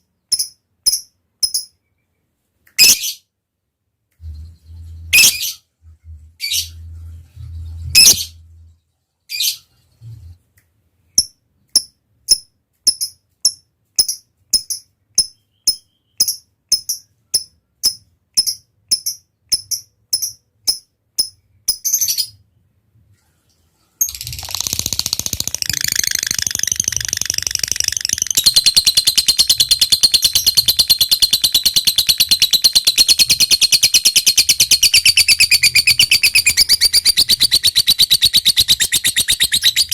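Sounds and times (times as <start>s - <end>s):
lovebird chirping: 4.2s - 10.4s, 14.0s - 22.4s, 24.0s - 39.9s
rapid chattering bird trill: 24.0s - 39.9s.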